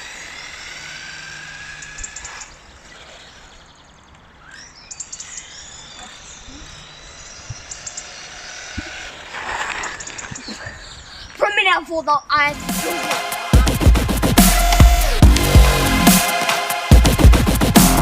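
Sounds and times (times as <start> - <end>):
electric motor whining: 0.0 - 11.4, 12.5 - 18.0
short crackles: 8.8 - 11.4.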